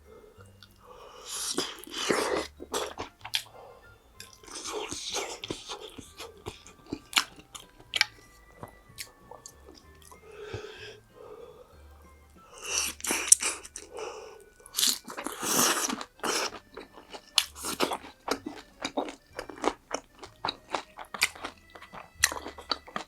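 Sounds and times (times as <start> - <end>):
chewing with sharp crackles: 0.6 - 11.0, 12.5 - 23.0
crunching bites of fried food: 14.6 - 23.0.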